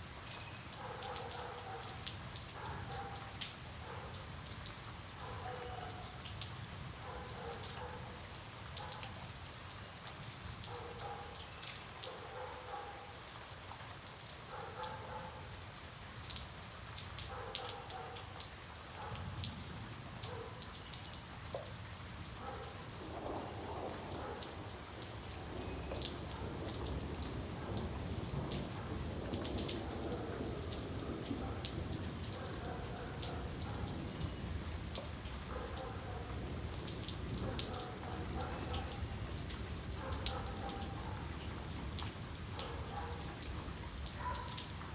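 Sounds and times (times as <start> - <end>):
rain falling: 0.0 - 44.9
distant thunder rumble: 23.0 - 32.2.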